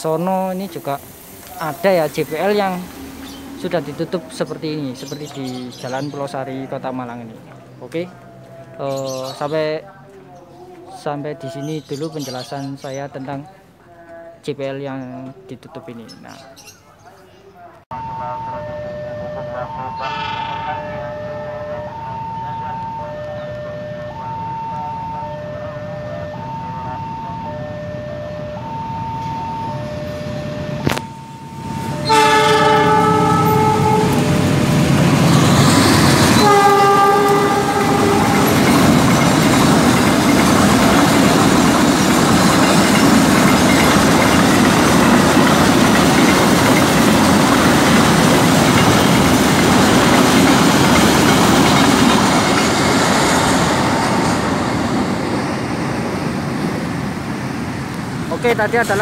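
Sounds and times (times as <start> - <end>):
crossing signal two-note tone: 17.9 - 39.4
train horn blasts: 18.4 - 39.1
train wheels on rails: 29.0 - 59.0.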